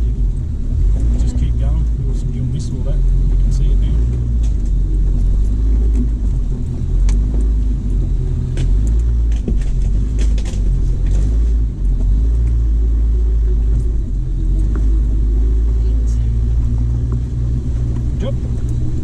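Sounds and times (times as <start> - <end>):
low engine rumble: 0.0 - 19.0
knocks and rattles: 8.4 - 12.6.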